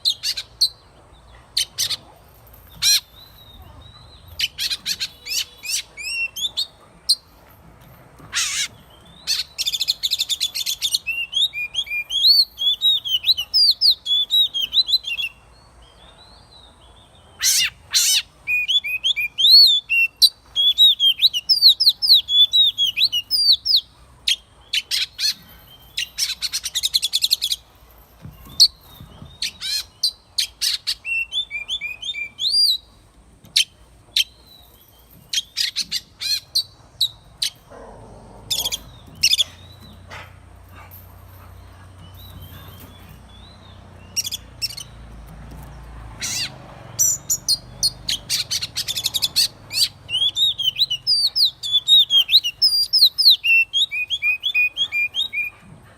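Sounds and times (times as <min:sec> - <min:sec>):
bird singing whistled notes: 0:09.2 - 0:15.4, 0:17.4 - 0:23.9, 0:28.5 - 0:32.9, 0:47.0 - 0:55.5.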